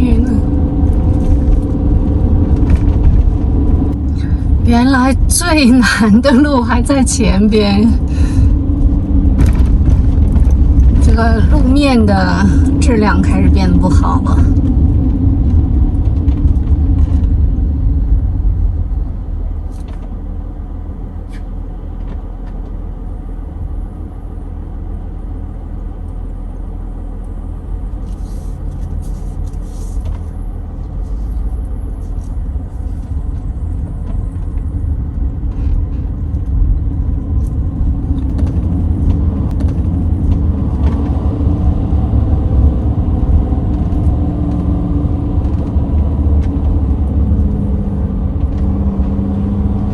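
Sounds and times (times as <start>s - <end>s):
engine and road rumble: 0.0s - 49.9s
light rattles and clicks: 13.8s - 23.6s, 26.0s - 49.9s.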